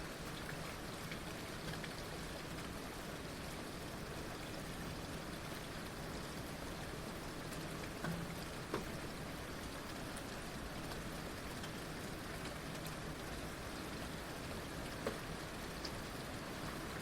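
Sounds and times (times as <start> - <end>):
heavy rain falling: 0.0 - 17.0
rain drop hits: 7.4 - 14.0, 14.6 - 17.0.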